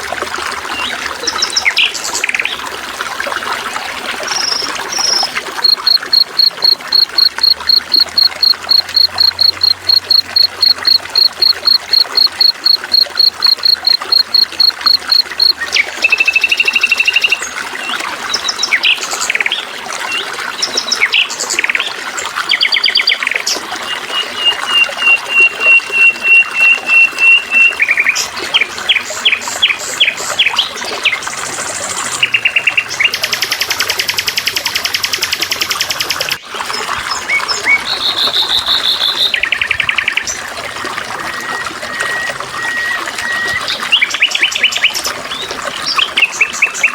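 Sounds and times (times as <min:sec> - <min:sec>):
trickling water: 0:00.0 - 0:46.9
songbirds calling: 0:04.4 - 0:17.6.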